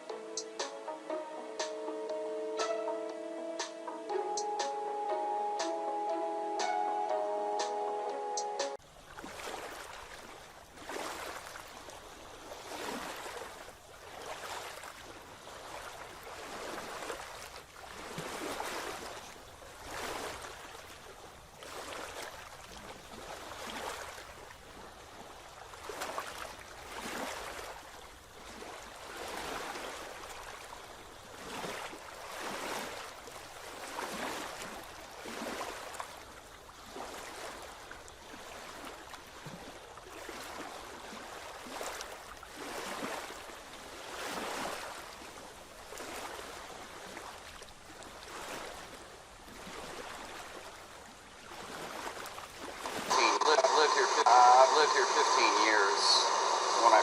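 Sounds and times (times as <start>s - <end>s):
water washing in small surges: 8.8s - 54.2s.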